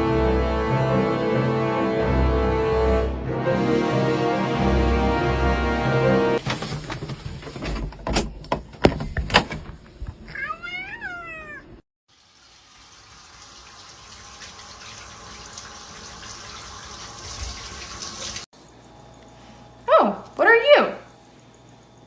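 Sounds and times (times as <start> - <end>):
cat meowing: 10.3 - 11.8.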